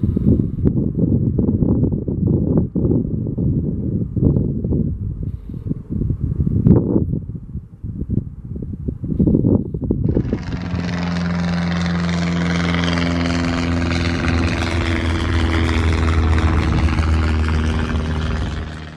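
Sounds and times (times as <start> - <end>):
wind buffeting microphone: 0.0 - 18.9
propeller aircraft engine humming: 10.0 - 18.9.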